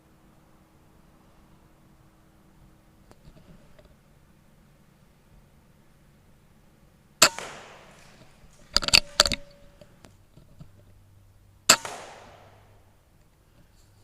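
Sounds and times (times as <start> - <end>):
sharp metallic clicks: 7.2 - 9.9, 11.7 - 12.8
air rifle shots: 7.2 - 10.0, 11.7 - 13.2.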